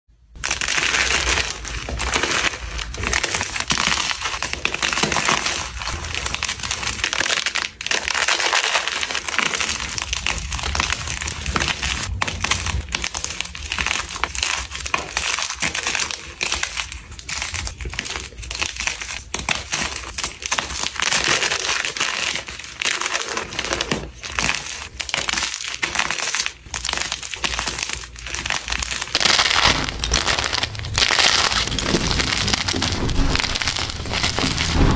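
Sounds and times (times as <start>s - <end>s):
chalk crunching: 0.3s - 34.9s.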